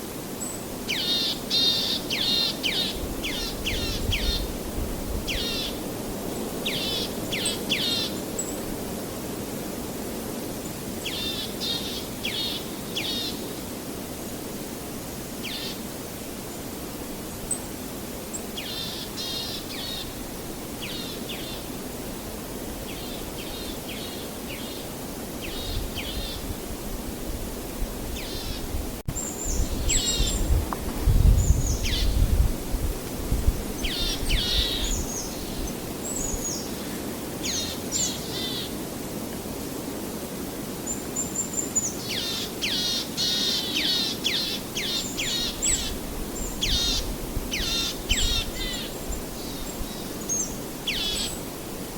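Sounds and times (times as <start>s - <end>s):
small birds chirping: 28.1s - 32.2s, 33.6s - 38.7s.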